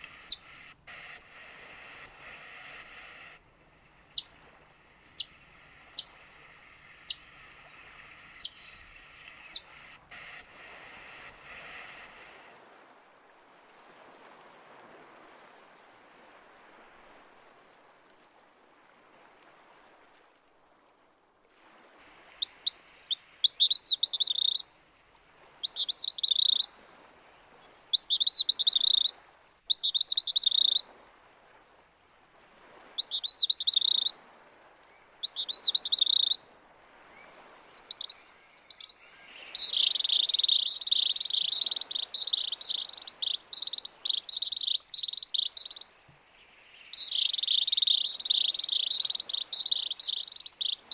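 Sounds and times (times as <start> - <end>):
songbird singing: 0.0 - 12.4, 22.2 - 24.7, 25.6 - 26.8, 27.5 - 30.9, 33.0 - 34.1, 34.8 - 50.9.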